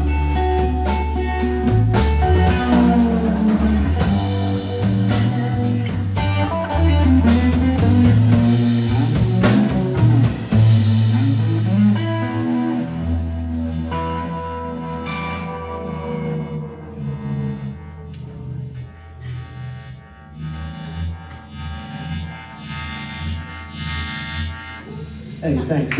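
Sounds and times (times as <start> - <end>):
drum kit: 0.0 - 14.5
electric guitar: 0.0 - 25.9
walking bass line: 0.0 - 25.9.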